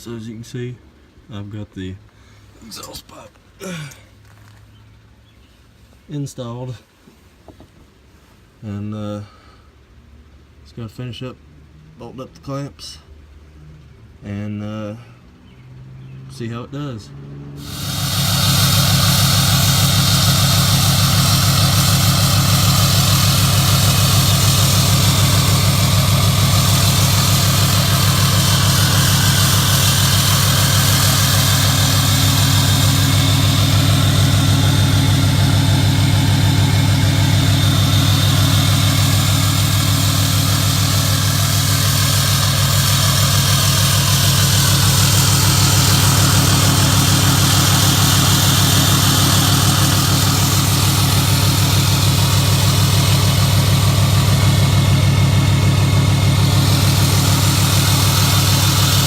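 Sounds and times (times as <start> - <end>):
diesel pickup engine idling: 17.6 - 59.0.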